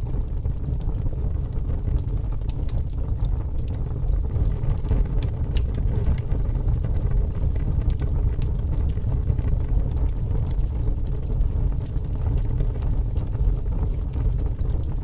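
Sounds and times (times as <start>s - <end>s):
fire crackling and popping: 0.0s - 15.0s
fire roaring: 0.0s - 15.0s.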